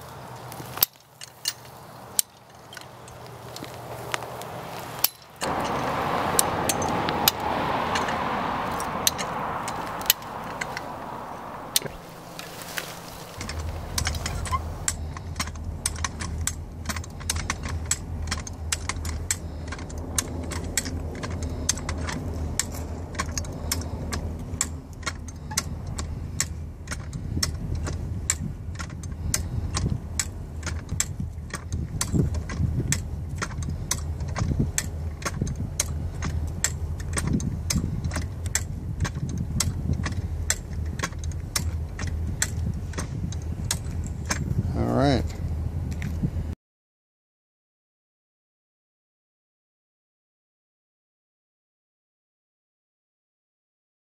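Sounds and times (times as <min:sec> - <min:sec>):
engine running steadily: 0:00.0 - 0:46.5
farm jack clicking and clacking: 0:00.6 - 0:04.3, 0:05.0 - 0:05.7, 0:11.7 - 0:44.6
steady rushing noise: 0:05.4 - 0:14.9.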